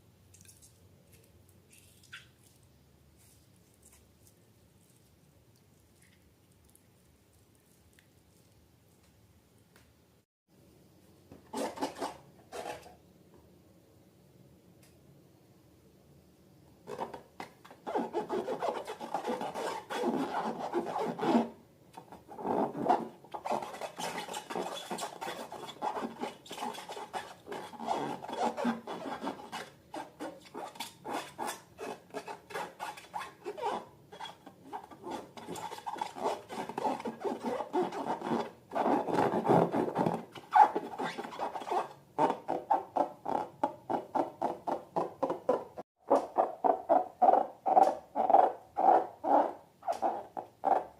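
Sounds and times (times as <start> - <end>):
slime rubbing and scraping: 17.7 - 43.0.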